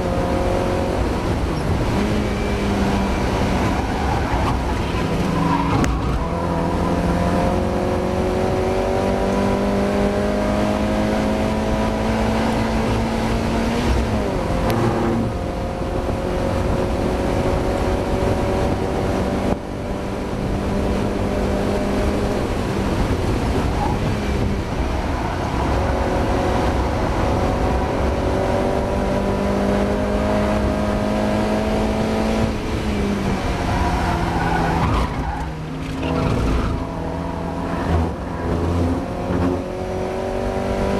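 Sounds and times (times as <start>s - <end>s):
car engine at full throttle: 0.0s - 40.9s.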